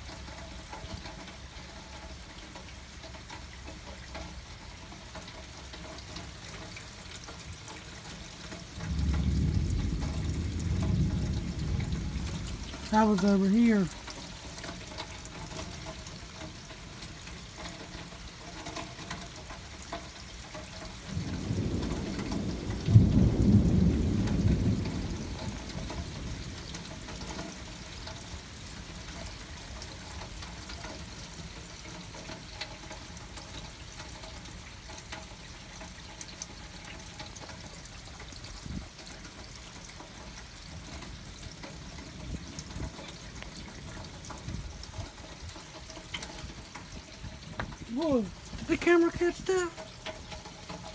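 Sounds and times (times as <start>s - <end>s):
steady rain: 0.0s - 50.9s
thunder rumbling: 8.8s - 14.0s, 21.1s - 27.2s.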